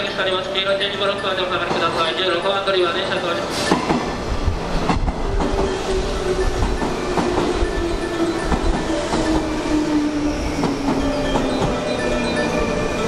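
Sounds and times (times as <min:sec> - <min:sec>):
low train rumble: 0:00.0 - 0:13.0
train whine slowing down: 0:05.3 - 0:13.0.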